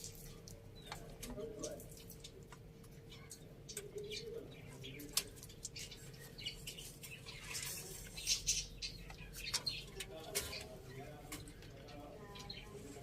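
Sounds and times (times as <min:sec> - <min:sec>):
beaks pecking at food: 0:00.0 - 0:13.0
chickens chirping and squawking: 0:03.0 - 0:11.0.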